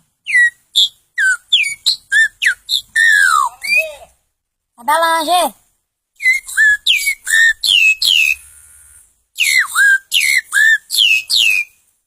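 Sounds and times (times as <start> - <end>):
boy whistling birdsong: 0.2 - 4.0, 6.2 - 8.6, 9.4 - 11.8.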